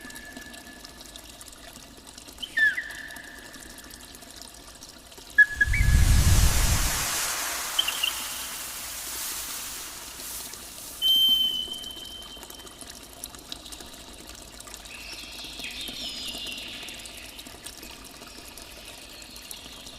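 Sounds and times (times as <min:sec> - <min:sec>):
water trickling and pouring: 0:00.0 - 0:19.9
faint high chirps: 0:07.6 - 0:09.1, 0:11.0 - 0:12.6.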